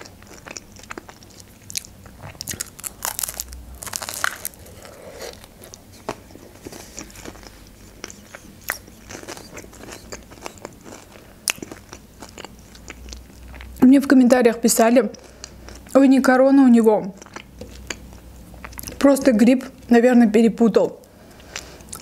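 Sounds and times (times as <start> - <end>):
chewing crisp fried pastry: 0.0 - 13.8, 15.1 - 16.0, 17.0 - 19.1, 21.0 - 22.0
mouth crackles: 1.8 - 11.2.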